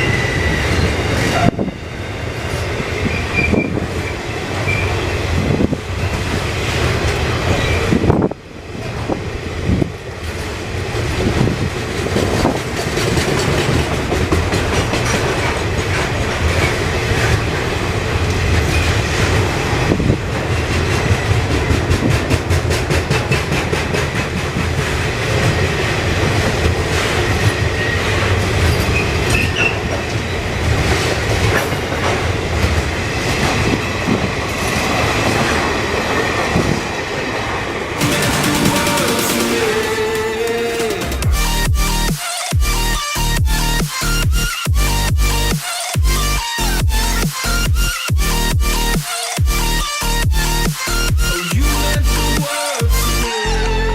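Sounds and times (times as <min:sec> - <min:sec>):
train rumbling past: 0:00.0 - 0:42.1
high wheel squeal: 0:03.0 - 0:05.1
wheels clicking over rail joints: 0:09.8 - 0:17.6.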